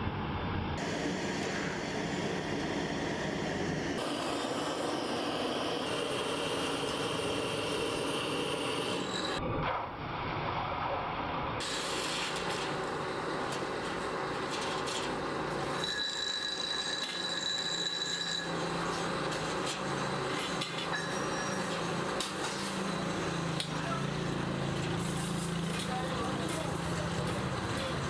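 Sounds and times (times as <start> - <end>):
metalworking machinery running: 0.8 - 9.4, 11.6 - 28.0
high metallic squeal: 5.7 - 9.4, 14.5 - 23.6.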